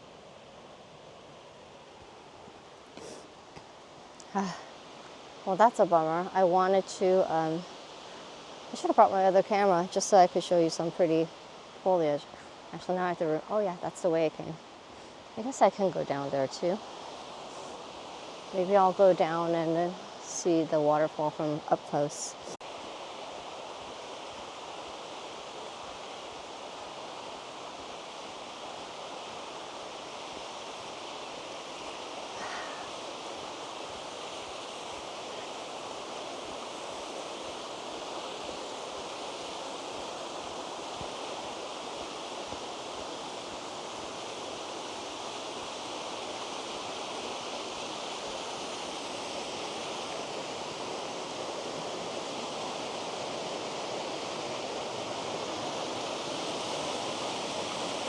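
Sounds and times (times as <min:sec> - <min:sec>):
waterfall rushing water: 0:22.3 - 0:58.0.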